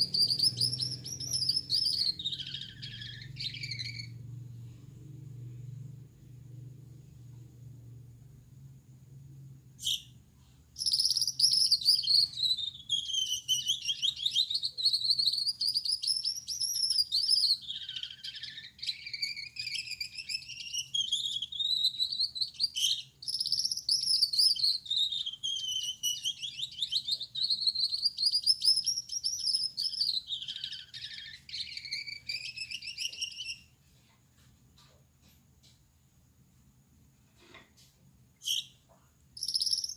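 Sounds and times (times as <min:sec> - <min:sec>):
finch singing: 0:00.0 - 0:04.2, 0:10.8 - 0:33.7, 0:39.4 - 0:39.9.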